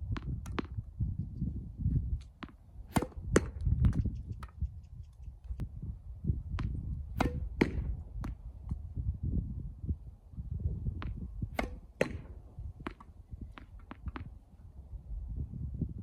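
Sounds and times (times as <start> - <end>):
racket striking tennis ball: 2.3 - 4.6, 6.6 - 8.8, 11.0 - 14.3
tennis ball bouncing on court: 2.3 - 4.6, 6.6 - 8.4, 11.0 - 14.3.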